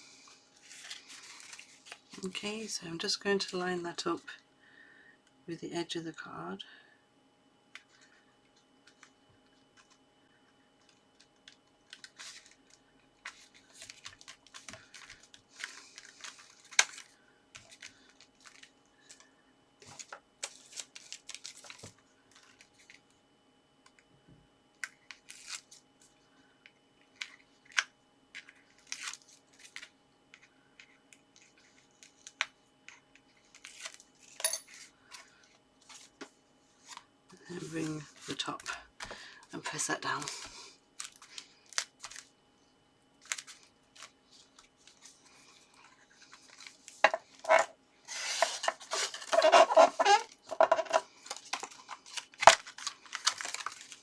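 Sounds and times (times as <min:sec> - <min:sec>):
faint steady hum: 0:00.0 - 0:54.0
paper rustling: 0:00.6 - 0:02.4, 0:11.9 - 0:19.2, 0:43.2 - 0:54.0.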